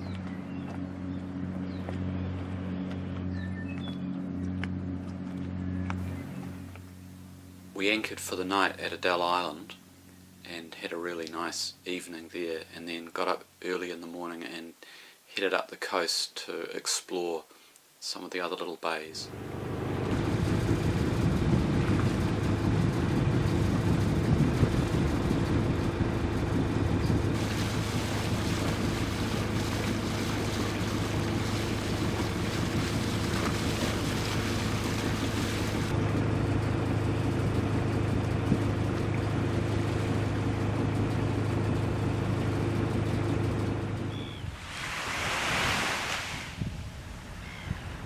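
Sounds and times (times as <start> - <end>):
boat engine droning: 0.0 - 13.5, 19.1 - 48.0
water rushing along hull: 19.3 - 47.6.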